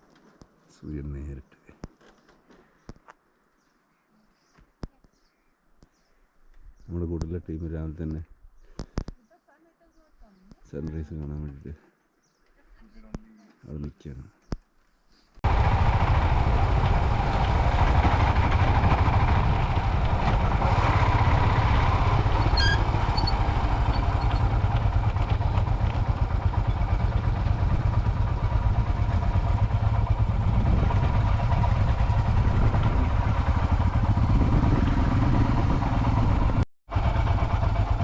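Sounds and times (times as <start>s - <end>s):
motorcycle engine rumbling: 15.4s - 38.0s
road and wind noise: 15.4s - 38.0s.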